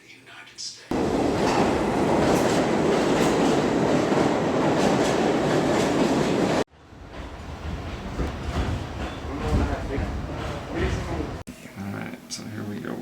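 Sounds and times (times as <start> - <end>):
train rumbling on rails: 0.9 - 11.4.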